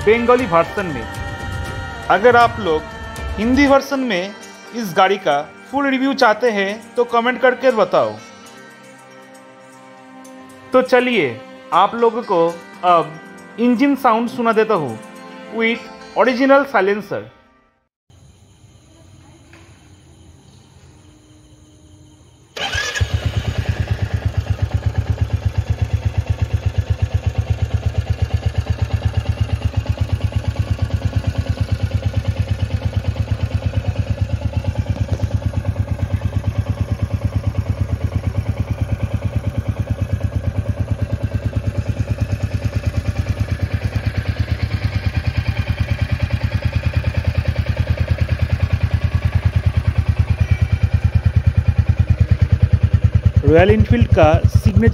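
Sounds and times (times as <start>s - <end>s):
motorcycle engine idling: 0.0s - 4.0s, 22.6s - 54.9s.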